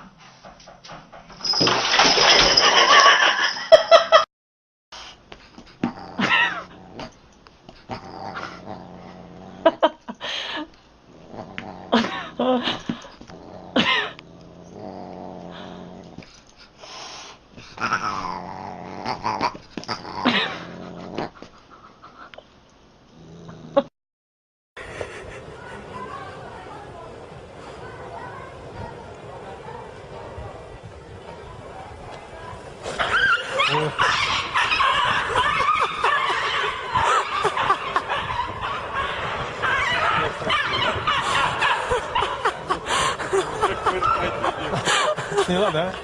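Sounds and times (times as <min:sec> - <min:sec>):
cat yowling and growling: 0:17.8 - 0:20.6, 0:32.9 - 0:42.8
dog sounds: 0:32.4 - 0:45.0.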